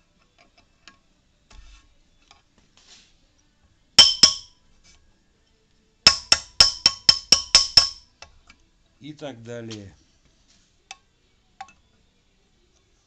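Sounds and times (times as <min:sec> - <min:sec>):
metallic clinks ringing: 0:04.0 - 0:04.5, 0:06.1 - 0:08.0.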